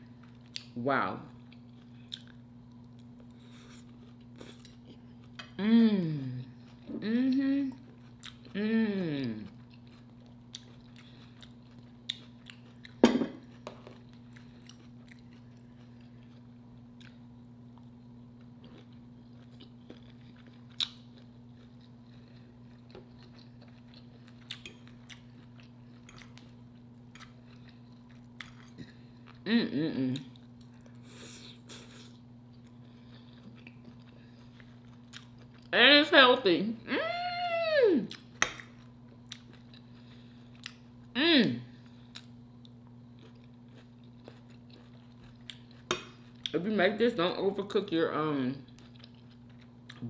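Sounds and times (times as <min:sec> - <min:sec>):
faint steady hum: 0:00.0 - 0:50.0
chewing and lip-smacking: 0:01.4 - 0:05.6, 0:07.6 - 0:08.6, 0:09.4 - 0:17.2, 0:17.8 - 0:29.4, 0:31.6 - 0:35.7, 0:38.1 - 0:41.0, 0:41.9 - 0:46.6, 0:48.7 - 0:50.0
person humming mm: 0:05.6 - 0:07.8, 0:08.5 - 0:09.5, 0:29.4 - 0:30.3, 0:41.2 - 0:41.7.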